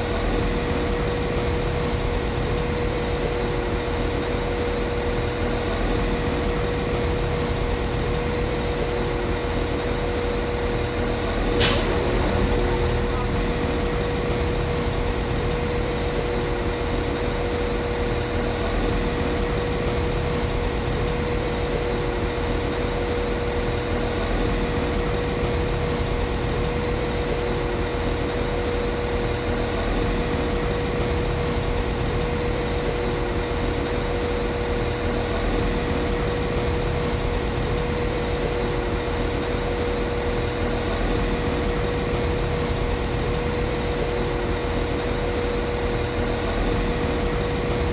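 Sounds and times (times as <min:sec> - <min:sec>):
train diesel engine idling: 0:00.0 - 0:22.2
constant steady hum: 0:00.0 - 0:47.9.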